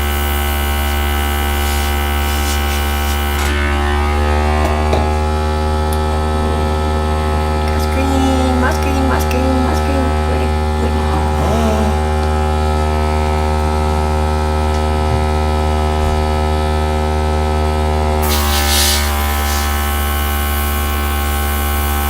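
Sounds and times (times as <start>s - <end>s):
air gun hissing: 0.0s - 3.6s, 18.2s - 21.9s
air compressor humming: 0.0s - 22.0s.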